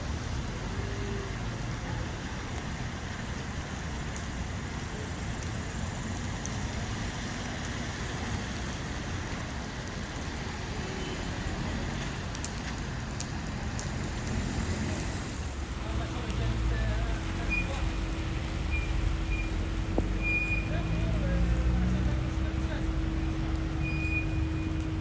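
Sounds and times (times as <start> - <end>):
heavy rain falling: 0.0 - 25.0
sharp drip ticks: 2.5 - 4.4, 5.3 - 10.3, 11.8 - 14.7, 17.1 - 25.0.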